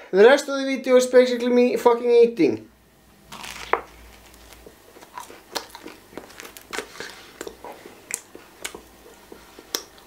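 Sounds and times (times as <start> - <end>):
person biting and chewing toast: 3.3 - 10.0.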